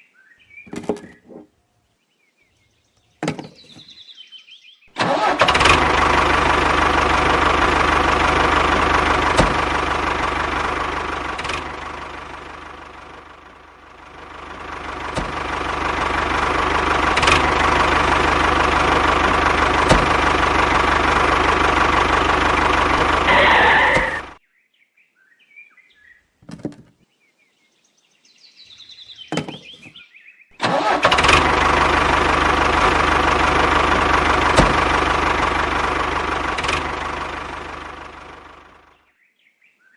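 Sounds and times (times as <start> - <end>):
engine running: 5.0 - 24.4, 30.6 - 39.0.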